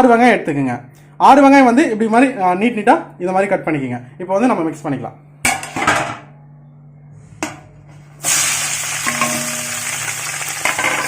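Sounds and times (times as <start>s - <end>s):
onions sizzling in hot oil: 8.2s - 11.0s.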